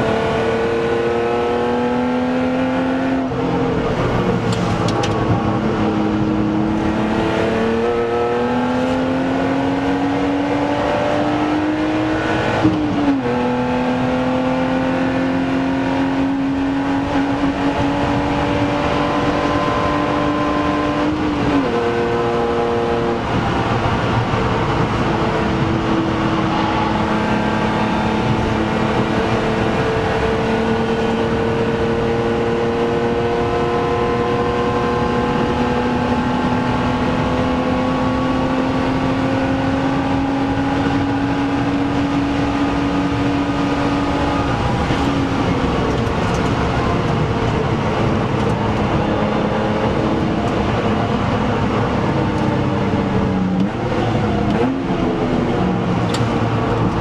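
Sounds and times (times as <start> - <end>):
car engine pulling hard: 0.0 - 57.0
road and wind noise: 0.0 - 57.0.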